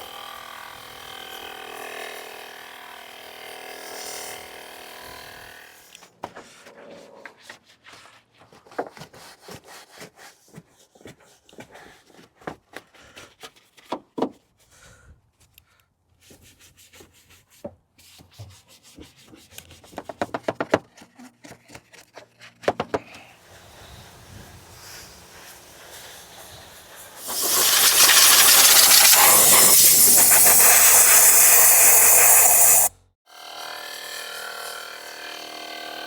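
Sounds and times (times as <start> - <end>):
hand scrubbing a surface: 23.8 - 32.9.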